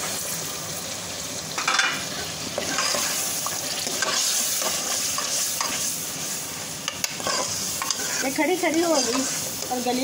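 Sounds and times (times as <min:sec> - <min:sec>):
lentils sizzling in hot oil: 0:00.0 - 0:10.0
ladle scraping metal pot: 0:07.0 - 0:09.7.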